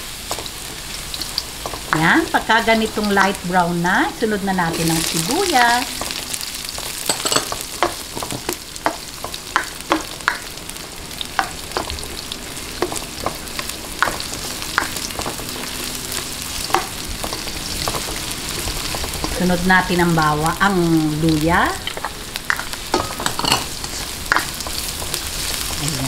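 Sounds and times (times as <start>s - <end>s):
garlic and onion sizzling in oil: 0.0s - 26.0s
spatula scraping and tapping wok: 21.8s - 25.7s.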